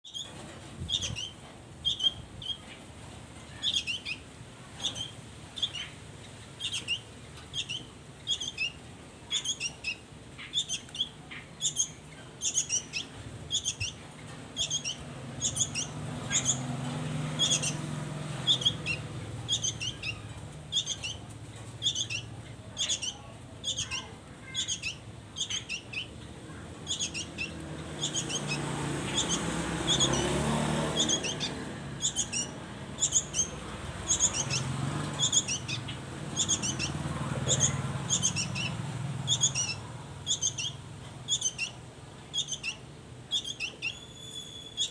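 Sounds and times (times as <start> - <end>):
songbird squeaky call notes: 0.9 - 2.6, 4.8 - 6.0, 6.6 - 14.0, 14.6 - 16.7, 17.4 - 17.8, 18.4 - 21.2, 26.9 - 30.3, 31.0 - 44.9.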